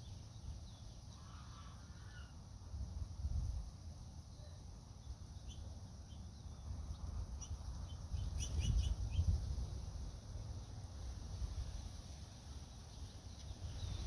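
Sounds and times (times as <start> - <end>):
small birds chirping: 0.0 - 2.4, 4.2 - 9.6, 12.6 - 14.0
wind buffeting microphone: 7.2 - 9.9.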